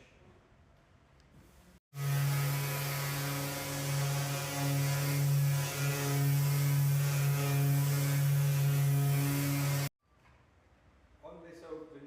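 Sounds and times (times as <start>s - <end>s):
electric sander on wood: 1.9s - 9.9s.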